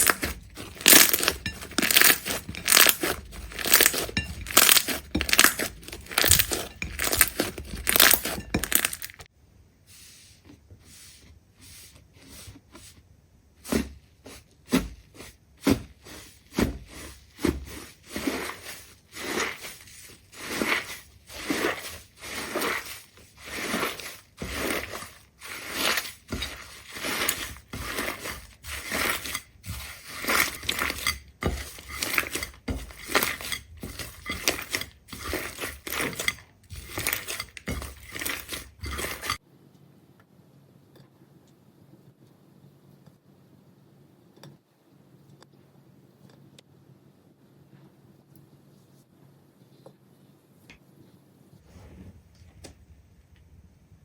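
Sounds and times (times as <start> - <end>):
crunching and crackling: 0.0 - 9.3, 15.7 - 39.4.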